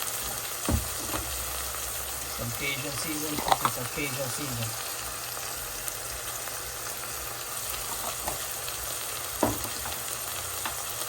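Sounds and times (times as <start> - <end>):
oil sizzling in a frying pan: 0.0 - 11.0.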